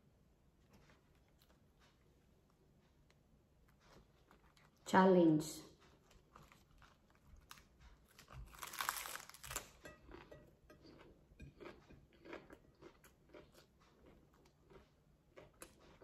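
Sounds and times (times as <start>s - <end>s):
crisp crackly chewing: 0.6s - 4.9s, 5.8s - 16.0s
crunchy bite into lettuce: 6.4s - 9.8s.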